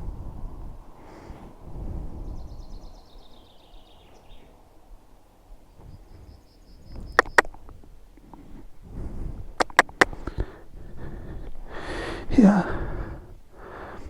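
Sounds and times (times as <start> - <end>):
low rumbling noise: 0.0 - 3.8
high rapid chirping trills: 7.0 - 7.5, 9.6 - 10.1
sharp clicks: 7.2 - 7.8, 9.6 - 10.5.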